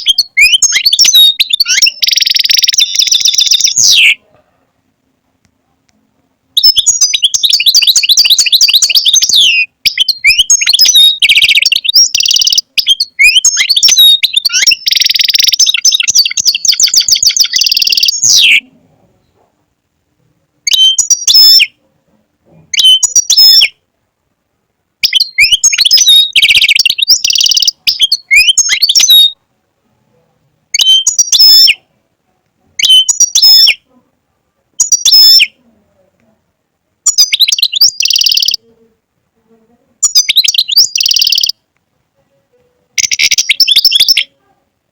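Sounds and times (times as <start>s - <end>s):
goldfinch twittering song: 6.6s - 18.6s, 25.0s - 29.3s, 37.1s - 38.6s, 40.0s - 41.6s.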